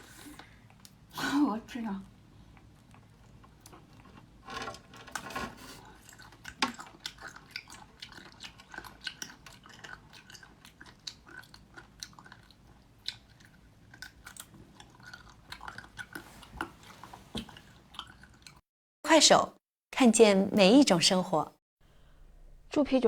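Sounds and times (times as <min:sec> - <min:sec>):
person chewing food: 0:00.2 - 0:01.1, 0:02.0 - 0:04.4, 0:05.8 - 0:18.6
mouth clicks and smacks: 0:06.2 - 0:16.8.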